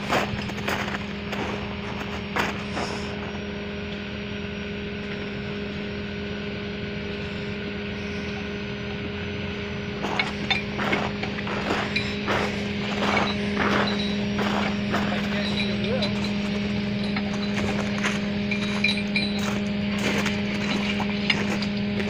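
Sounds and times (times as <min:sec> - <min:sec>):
truck engine running: 0:00.0 - 0:22.0
knocks and clatters: 0:10.0 - 0:22.0.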